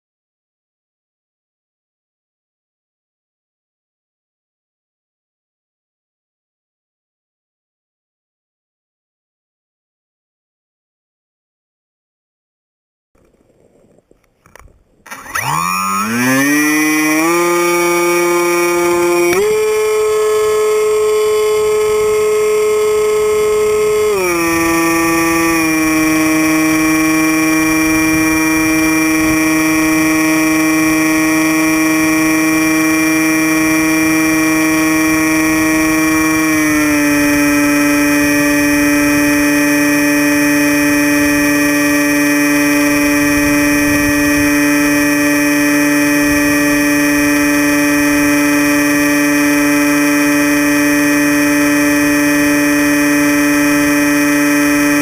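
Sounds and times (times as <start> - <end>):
model plane motor whine: 14.2 - 55.0.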